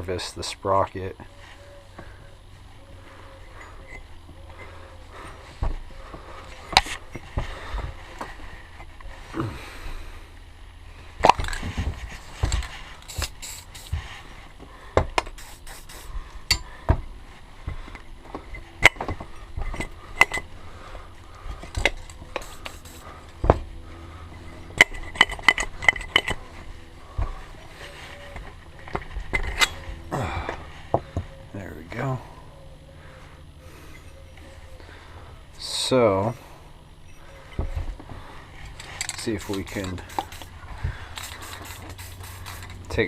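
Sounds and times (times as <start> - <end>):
steady low hum: 0.0 - 43.0
metal tools clinking and scraping: 3.3 - 4.8, 16.4 - 16.8, 18.0 - 20.6, 24.2 - 32.1, 33.7 - 34.7, 37.0 - 37.8, 38.5 - 40.5.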